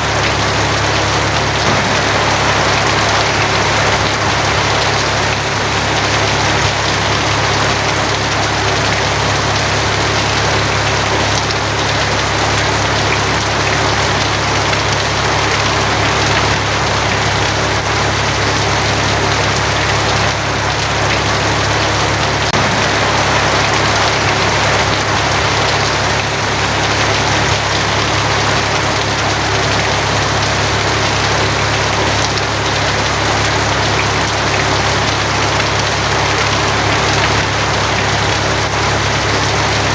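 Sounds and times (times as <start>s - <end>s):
heavy rain on a tin roof: 0.0s - 39.9s
low hum: 1.6s - 7.4s, 22.5s - 26.5s.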